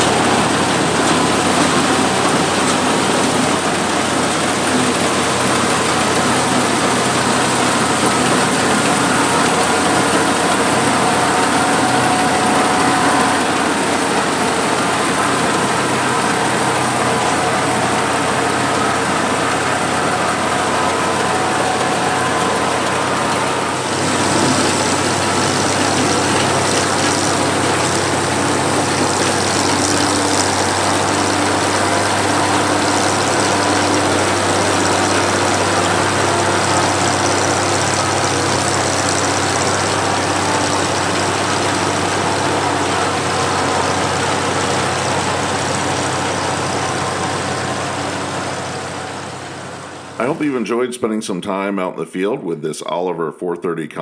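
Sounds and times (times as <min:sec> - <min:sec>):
combine engine and threshing machinery: 0:00.0 - 0:50.5
low engine hum: 0:00.0 - 0:50.5.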